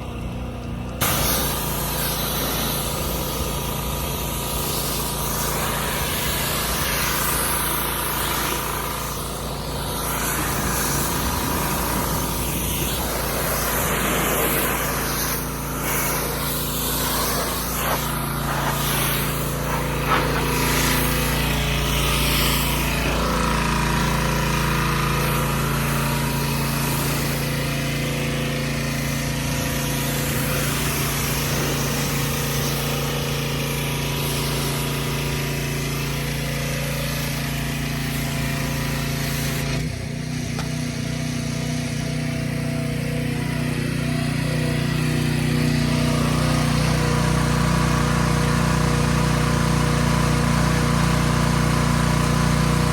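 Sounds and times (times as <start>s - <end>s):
engine humming: 0.0s - 36.1s
wide even hiss: 1.0s - 24.2s.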